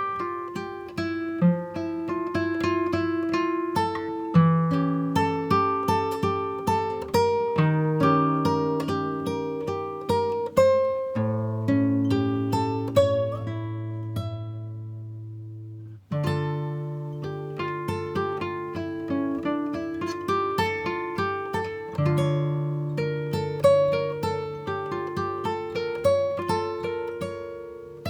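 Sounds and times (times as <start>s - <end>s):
acoustic guitar plucking: 0.0s - 28.0s.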